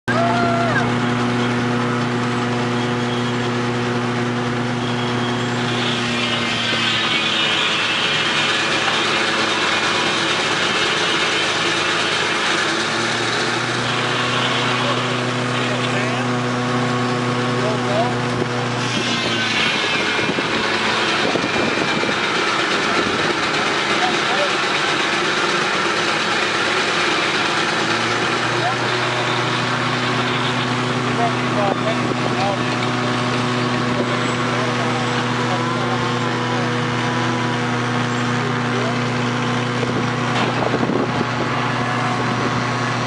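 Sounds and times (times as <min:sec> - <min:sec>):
short falling whine: 0:00.0 - 0:23.4
sawmill machinery hum: 0:00.0 - 0:43.0.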